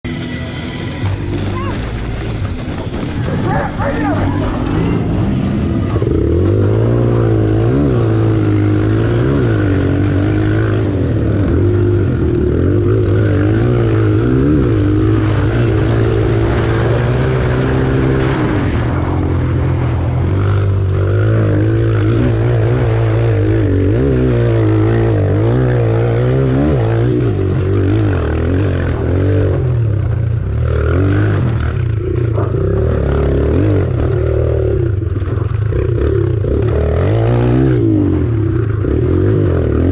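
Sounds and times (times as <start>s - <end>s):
dirt bike engine revving: 0.1s - 39.9s.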